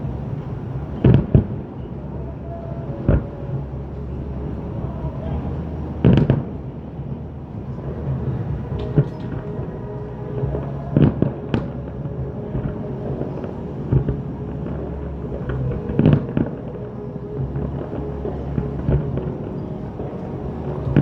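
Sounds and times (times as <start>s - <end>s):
continuous low rumble: 0.0s - 21.0s
fireworks bangs: 7.6s - 21.0s.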